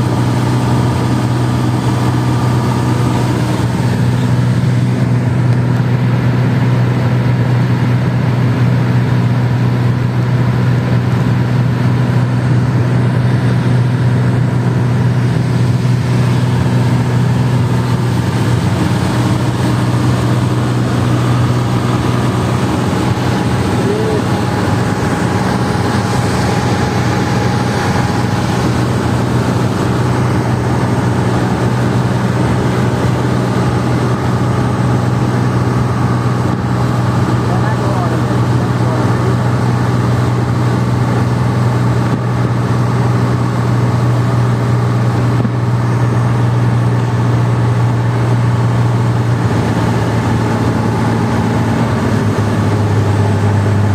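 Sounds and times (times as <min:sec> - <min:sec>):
jet engine drone in cabin: 0:00.0 - 0:53.9.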